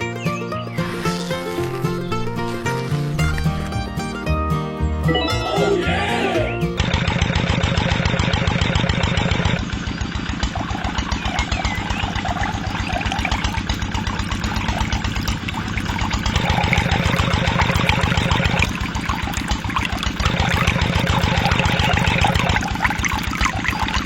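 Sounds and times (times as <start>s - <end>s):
small engine chugging: 6.8s - 24.0s
water splashing: 9.7s - 24.0s.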